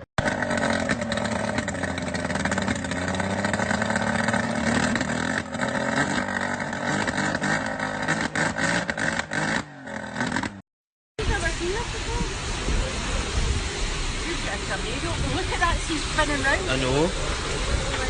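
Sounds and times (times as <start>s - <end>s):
engine running steadily: 0.0s - 9.4s.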